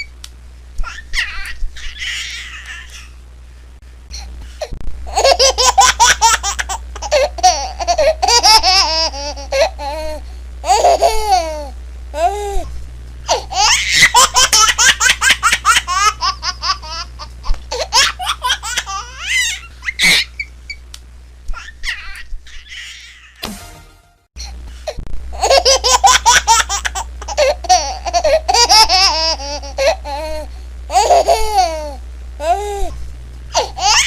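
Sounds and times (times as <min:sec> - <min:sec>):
baby laughing: 0:00.8 - 0:03.2, 0:05.1 - 0:12.4, 0:13.3 - 0:20.5, 0:25.4 - 0:32.6, 0:33.6 - 0:34.0.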